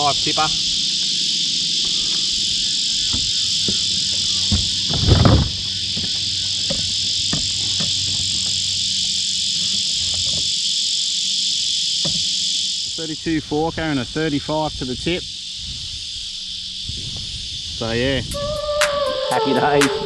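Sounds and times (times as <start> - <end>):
insect chorus drone: 0.0 - 20.0
light knocks: 1.8 - 8.8, 12.0 - 12.4
rustling thump: 1.8 - 10.7, 12.0 - 12.7.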